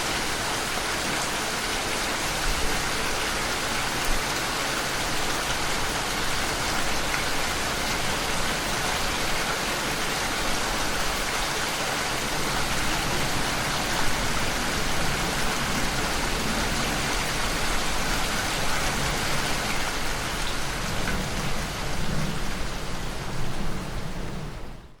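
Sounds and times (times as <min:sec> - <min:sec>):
steady rain falling: 0:00.0 - 0:25.0.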